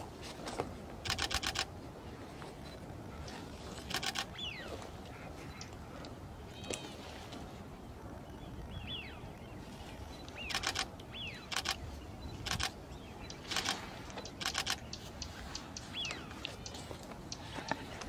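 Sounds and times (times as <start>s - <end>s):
camera shutters clicking: 1.0s - 1.7s, 3.8s - 4.3s, 10.4s - 10.9s, 11.5s - 11.8s, 12.4s - 14.9s.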